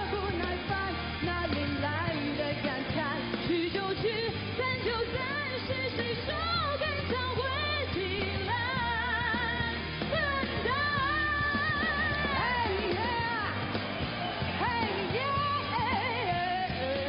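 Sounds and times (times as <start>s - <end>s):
woman singing with vibrato: 0.0s - 13.6s, 14.5s - 17.0s
live band playing: 0.0s - 17.0s.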